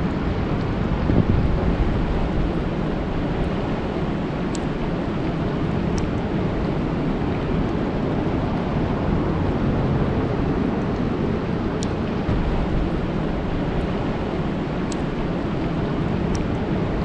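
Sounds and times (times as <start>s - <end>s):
heavy low rumble: 0.0s - 17.0s
rain falling on a lake: 0.1s - 17.0s
faint sharp ticks: 14.9s - 15.2s.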